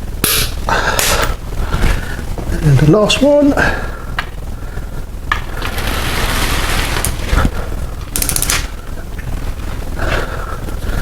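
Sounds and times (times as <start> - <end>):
torque wrench ratchet clicks: 8.1 - 8.6.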